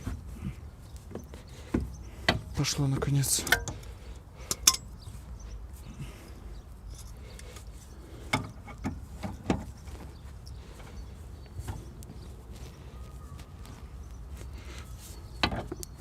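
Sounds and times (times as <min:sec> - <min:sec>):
metal clicks and knocks: 0:03.4 - 0:03.8, 0:04.4 - 0:04.9.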